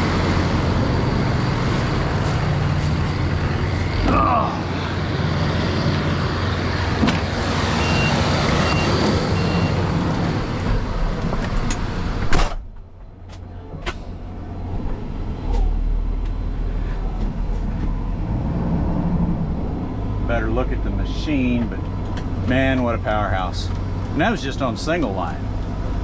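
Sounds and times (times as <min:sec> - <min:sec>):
heavy vehicle engine running: 0:00.0 - 0:26.0
backup alarm beeps: 0:07.6 - 0:09.9.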